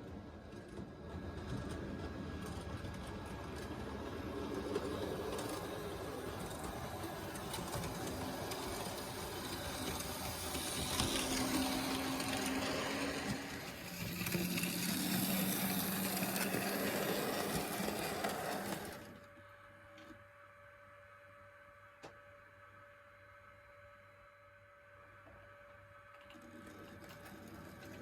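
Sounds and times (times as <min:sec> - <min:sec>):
wheels rattling on rail joints: 0:00.6 - 0:19.2
model locomotive motor humming: 0:00.6 - 0:19.9.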